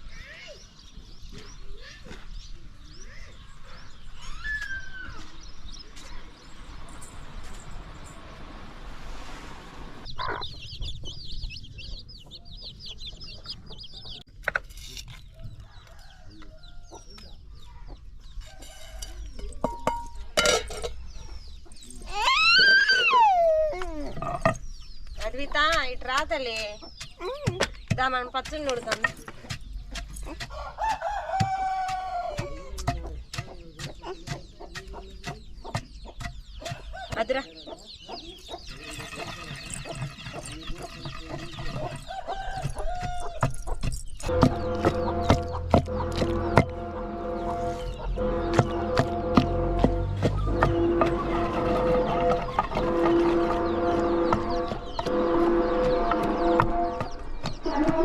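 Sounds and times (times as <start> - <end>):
chickens peeping: 10.0 - 14.4, 15.2 - 20.3, 21.0 - 58.0
rooster crowing: 30.5 - 32.8, 42.1 - 43.4.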